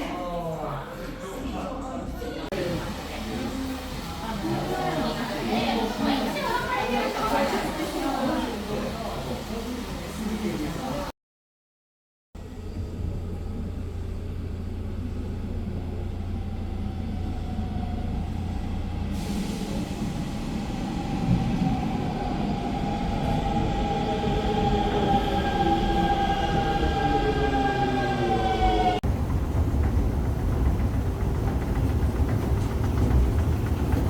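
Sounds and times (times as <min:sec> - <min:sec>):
low mechanical rumble: 0:12.4 - 0:19.2.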